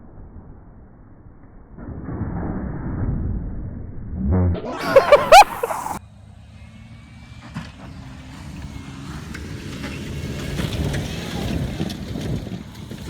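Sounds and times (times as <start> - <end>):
race truck engine: 6.0 - 13.0.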